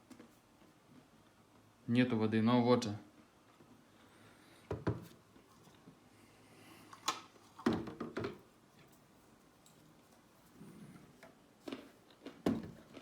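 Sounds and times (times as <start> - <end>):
plastic parts clicking and knocking: 7.0 - 8.4.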